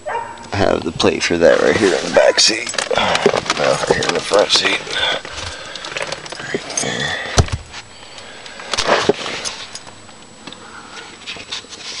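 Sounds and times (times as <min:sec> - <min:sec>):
rustling and knocks in a car: 0:01.5 - 0:07.9.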